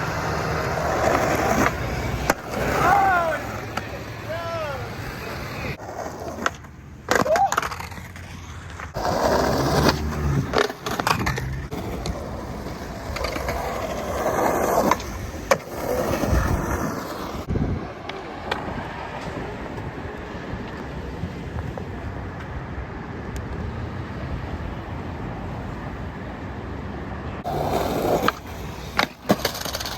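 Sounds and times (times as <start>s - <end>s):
skateboard clacking on ground: 0.0s - 4.0s, 5.8s - 22.6s, 27.4s - 29.9s
skateboard rolling on wet pavement: 0.0s - 29.9s.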